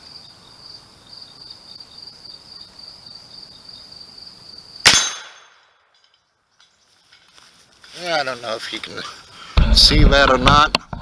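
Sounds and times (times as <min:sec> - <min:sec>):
rifle shot: 0:04.8 - 0:05.8.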